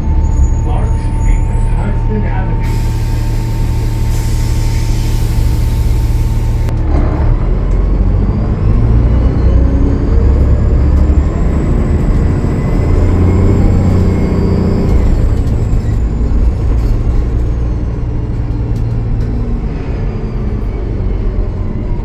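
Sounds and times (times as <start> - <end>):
bus diesel engine: 0.0 - 22.0
loud air hiss: 2.6 - 6.7.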